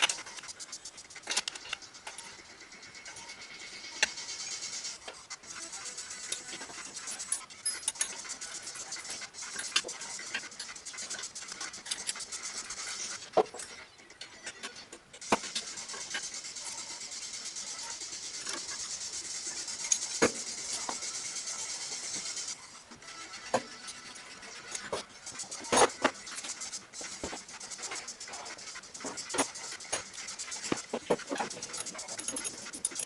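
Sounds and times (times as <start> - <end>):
steady hiss: 15.2 - 22.8.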